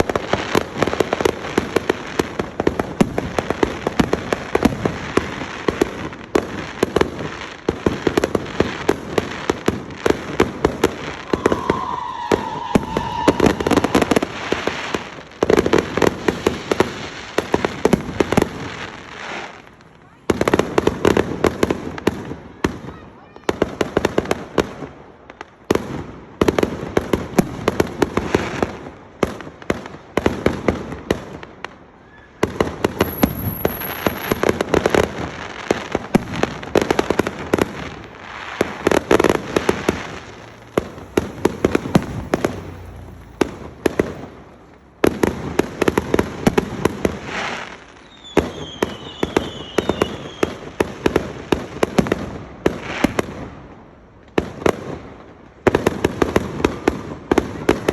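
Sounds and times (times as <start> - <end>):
fireworks crackling bangs: 0.0 - 57.9
falling firework whistles: 10.1 - 19.6, 32.0 - 34.9, 36.0 - 50.8.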